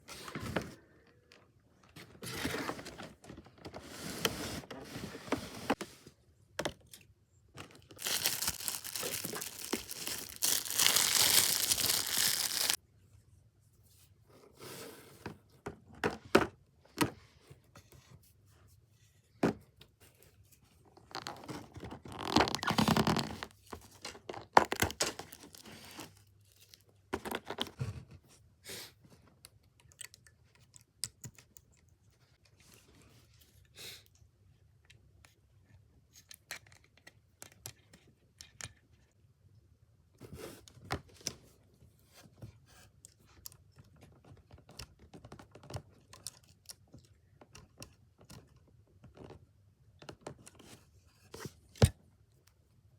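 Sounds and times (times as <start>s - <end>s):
materials tearing and crinkling: 7.9s - 12.8s.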